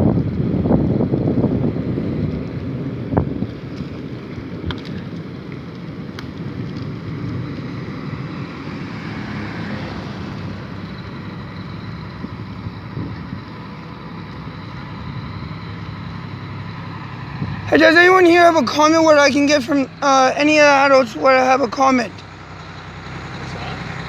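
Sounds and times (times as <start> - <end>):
moving vehicle rumble: 0.0 - 24.0
traffic: 0.0 - 24.0
wind buffeting microphone: 0.0 - 24.0
faint clicks: 4.6 - 7.7.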